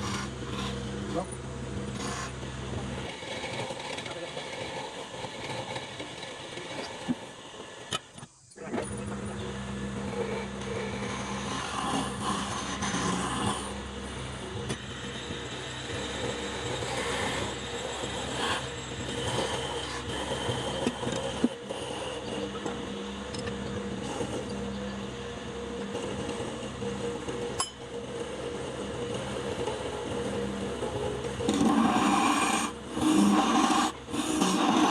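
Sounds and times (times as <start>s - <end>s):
blade scraping on wood: 0.0s - 7.2s, 9.9s - 13.8s, 15.6s - 23.2s, 29.1s - 34.9s
woodworking machine motor running: 0.0s - 34.9s.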